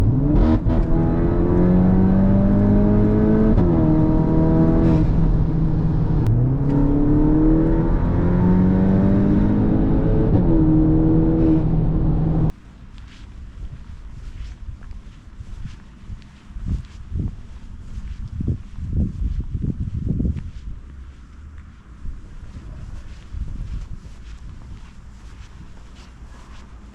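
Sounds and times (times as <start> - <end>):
car engine accelerating hard: 0.0 - 12.5.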